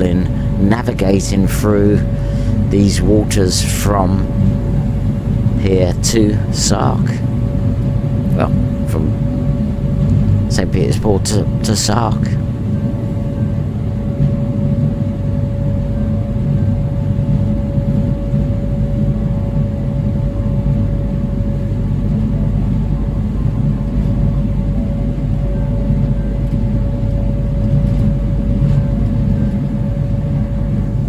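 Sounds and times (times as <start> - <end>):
ferry engines rumbling: 0.0 - 18.3
steady engine hum: 0.0 - 31.0.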